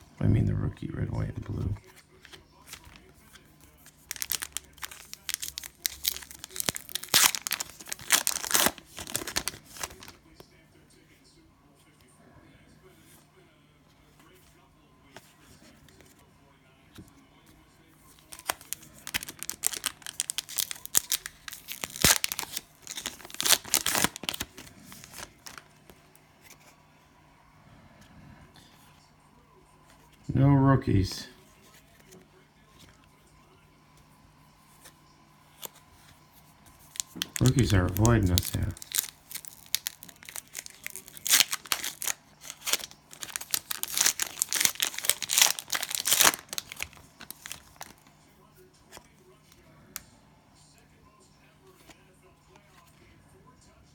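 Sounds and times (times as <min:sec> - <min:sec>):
cellophane tearing and crinkling: 0:03.8 - 0:10.2, 0:18.2 - 0:25.7, 0:36.8 - 0:48.1.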